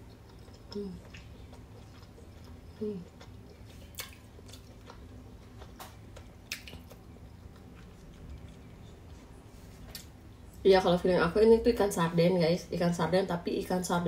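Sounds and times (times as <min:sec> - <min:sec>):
person chewing wet food: 0:00.0 - 0:10.4.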